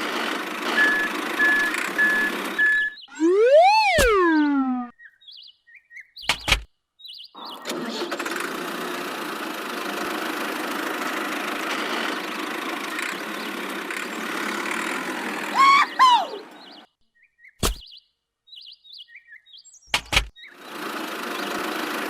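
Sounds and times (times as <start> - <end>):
small motor-driven machine running: 0.0 - 3.4, 7.6 - 15.6, 20.5 - 22.0
short falling chirps: 0.8 - 4.9.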